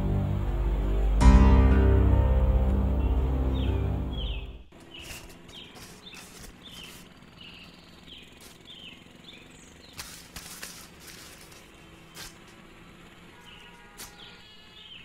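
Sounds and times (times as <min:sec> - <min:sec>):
outdoor background noise: 0:00.0 - 0:15.0
bird chirping: 0:02.8 - 0:10.2, 0:13.3 - 0:15.0
clicks and rustles: 0:09.9 - 0:12.6.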